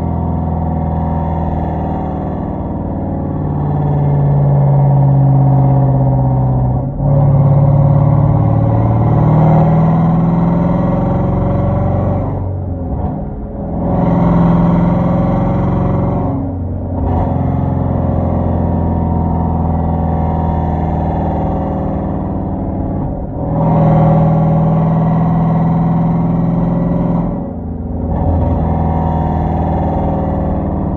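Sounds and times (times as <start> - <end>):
car exhaust roaring: 0.0 - 30.9.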